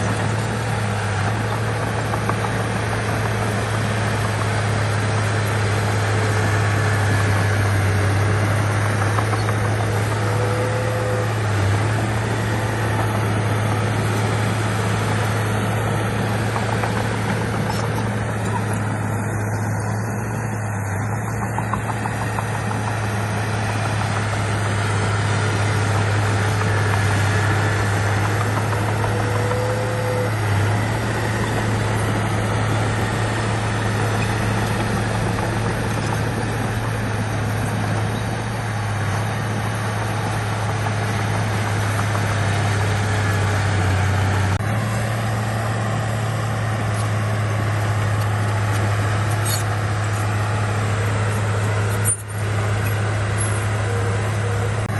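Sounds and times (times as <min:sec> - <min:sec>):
heavy diesel engine droning: 0:00.0 - 0:54.9.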